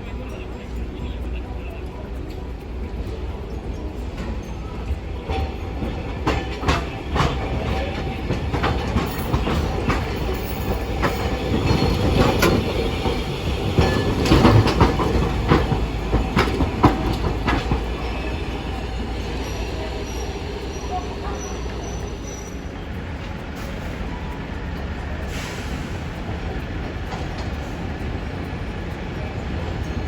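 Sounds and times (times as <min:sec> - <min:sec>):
streetcar wheels clacking over rails: 0:00.0 - 0:30.0.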